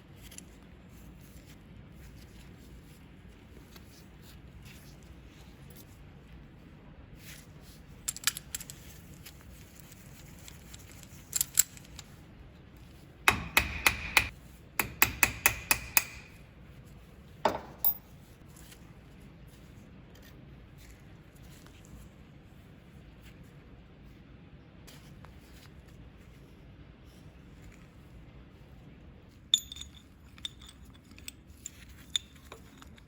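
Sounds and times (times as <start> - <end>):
metallic taps and clinks: 13.3 - 16.4, 17.5 - 18.1, 29.5 - 33.0.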